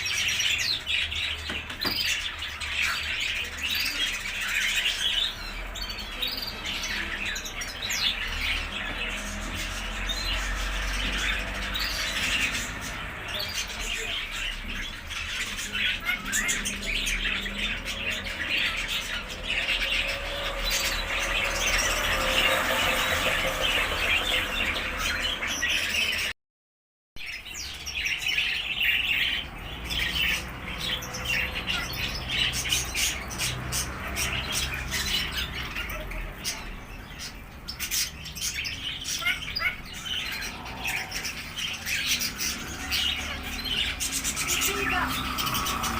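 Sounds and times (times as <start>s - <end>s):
birds chirping and squawking: 0.0s - 26.4s, 27.2s - 45.9s.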